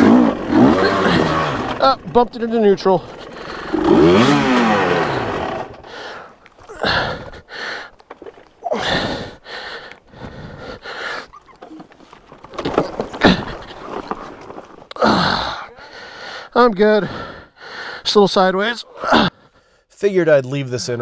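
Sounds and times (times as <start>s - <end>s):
dirt bike engine revving: 0.0s - 7.2s
man breathing heavily and grunting: 0.0s - 8.0s, 8.6s - 11.5s, 14.9s - 18.1s, 18.8s - 19.9s.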